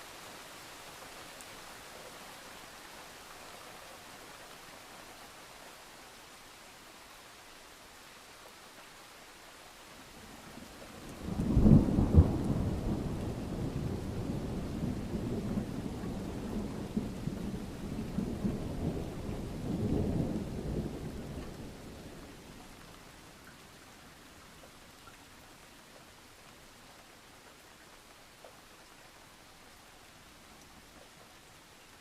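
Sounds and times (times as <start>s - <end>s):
faint rain: 0.0s - 32.0s
thunderclap with low rumble: 11.1s - 22.1s.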